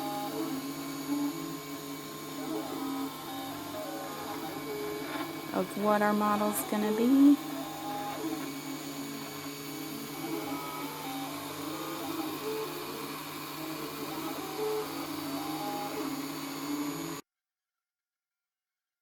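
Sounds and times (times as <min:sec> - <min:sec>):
steady printer hum: 0:00.0 - 0:17.2
stepper motors whining: 0:00.0 - 0:17.2.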